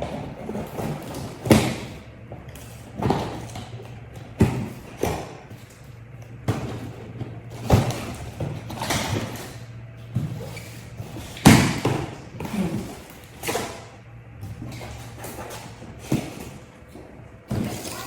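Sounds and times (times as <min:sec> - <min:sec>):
cardboard box thumps and knocks: 0:03.0 - 0:05.6, 0:06.4 - 0:09.4, 0:11.2 - 0:13.8, 0:17.5 - 0:17.9.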